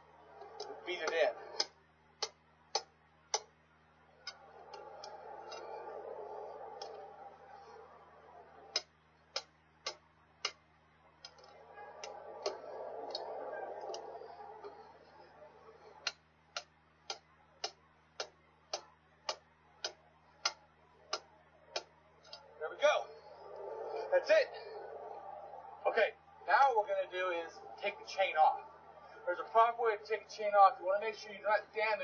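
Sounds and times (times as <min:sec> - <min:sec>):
broad rushing noise: 0:04.2 - 0:08.8, 0:11.5 - 0:16.0.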